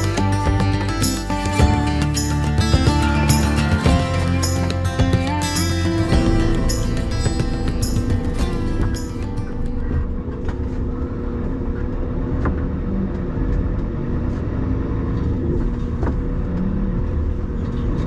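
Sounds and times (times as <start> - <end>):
diesel engine running: 0.0 - 10.3
road rumble: 0.0 - 18.0.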